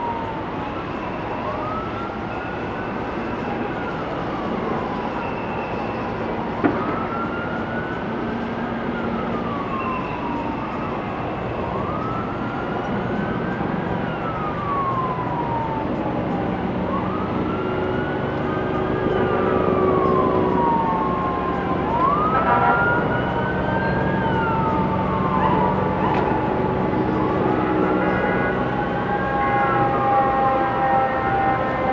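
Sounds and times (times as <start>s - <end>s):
emergency vehicle sirens wailing: 0.0s - 31.9s
traffic rumble: 9.7s - 31.9s.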